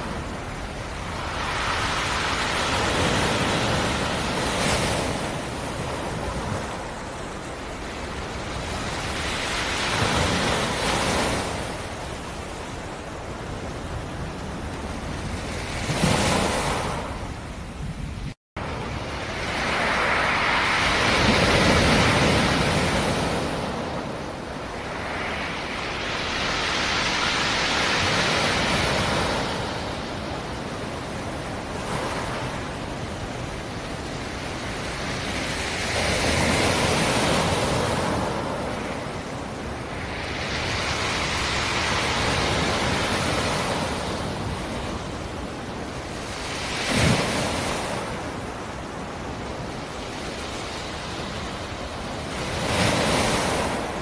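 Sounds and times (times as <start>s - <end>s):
surf breaking on rocky shore: 0.0s - 7.1s, 18.6s - 45.4s.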